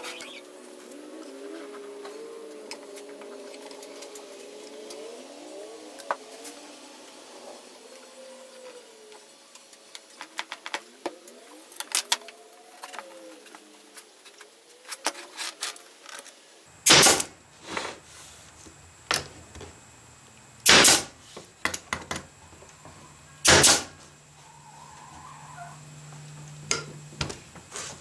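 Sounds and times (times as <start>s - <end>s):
air staple gun firing: 16.8s - 17.3s, 20.6s - 21.2s, 23.4s - 23.9s.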